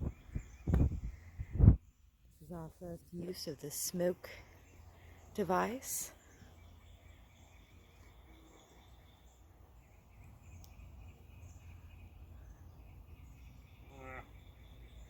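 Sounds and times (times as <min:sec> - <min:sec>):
wind rumble on microphone: 0:00.0 - 0:01.9.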